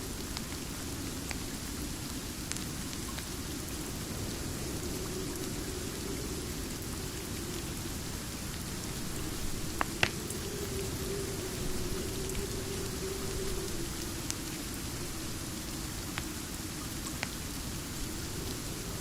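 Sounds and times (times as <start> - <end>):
steady rain: 0.0 - 19.0
wood fire crackling and popping: 9.6 - 10.4.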